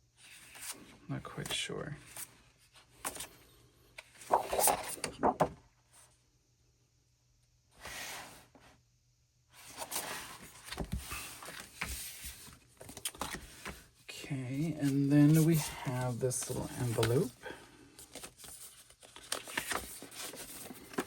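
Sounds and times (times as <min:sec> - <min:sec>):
paper and plastic crinkling: 0:09.8 - 0:13.9, 0:14.6 - 0:21.0.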